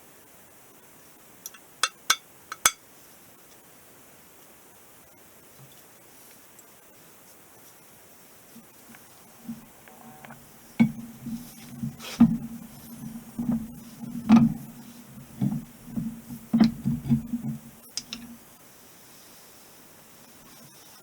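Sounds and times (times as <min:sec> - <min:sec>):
metal parts knocking: 0:09.4 - 0:18.5.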